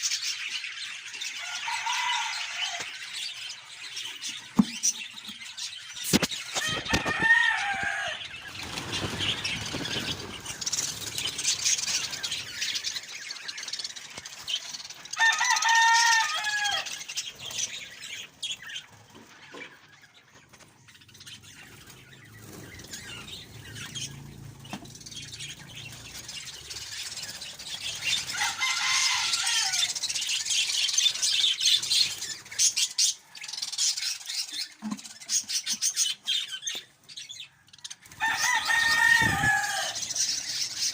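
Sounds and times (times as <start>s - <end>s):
chick calls dropping in pitch: 6.5s - 8.2s.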